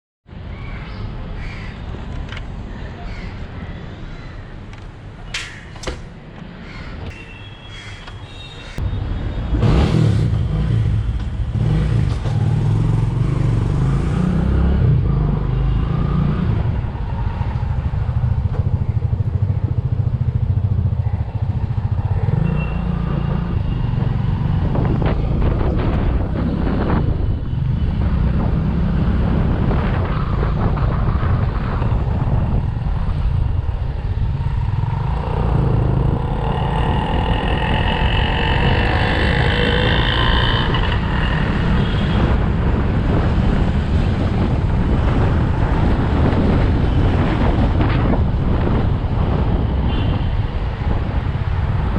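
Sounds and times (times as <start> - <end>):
motorcycle engine running: 34.3 - 42.1.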